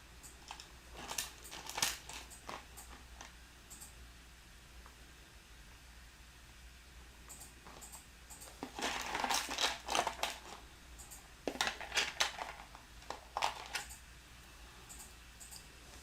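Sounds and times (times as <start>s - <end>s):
plastic bricks clattering: 0.5s - 2.7s, 8.6s - 10.6s, 11.5s - 13.9s.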